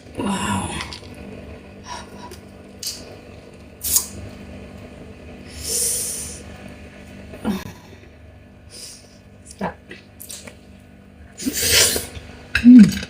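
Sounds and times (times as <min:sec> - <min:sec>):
airy sucking: 0:05.4 - 0:06.5, 0:11.4 - 0:12.1.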